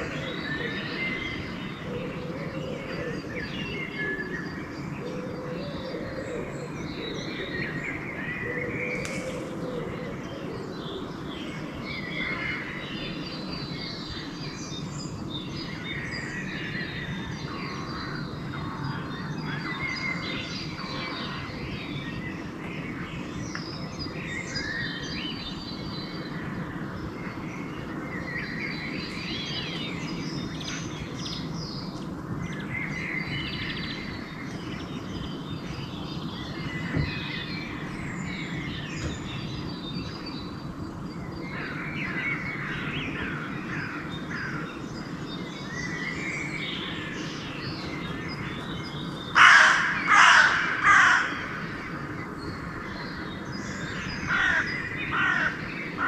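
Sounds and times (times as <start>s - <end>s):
songbirds chirping and singing: 0.0s - 56.0s
crow cawing: 49.4s - 51.7s, 54.3s - 55.6s.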